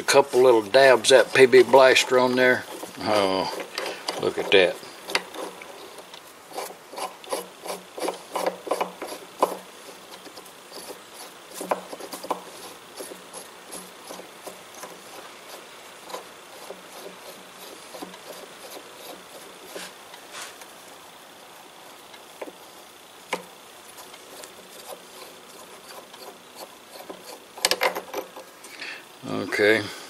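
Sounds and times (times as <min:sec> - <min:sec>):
hand file stroking metal: 0:00.0 - 0:20.6, 0:23.9 - 0:28.4.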